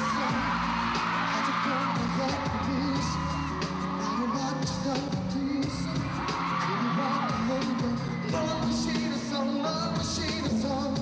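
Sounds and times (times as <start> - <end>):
fans screaming: 0.0 - 10.4
person singing pop song live: 0.0 - 11.0
pop backing track: 0.0 - 11.0.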